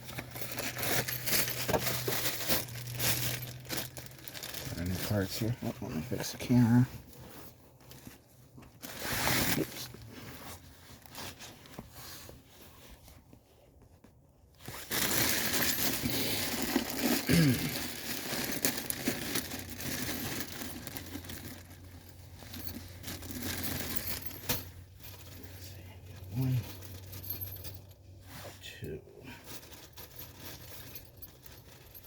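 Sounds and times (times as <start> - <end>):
rustling parts: 0.0 - 32.0.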